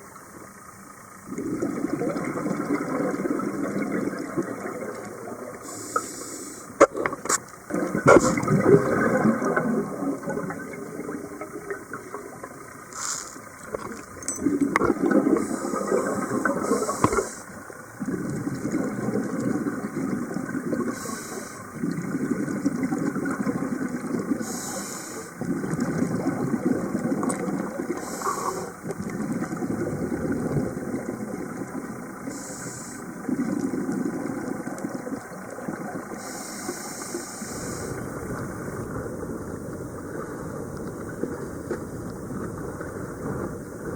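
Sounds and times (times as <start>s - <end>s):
diver exhaling bubbles underwater: 1.2s - 43.9s
regulator inhalation hiss: 5.6s - 6.8s, 15.4s - 17.5s, 20.9s - 21.7s, 24.4s - 25.4s, 28.0s - 28.8s, 32.3s - 33.1s, 36.2s - 38.0s.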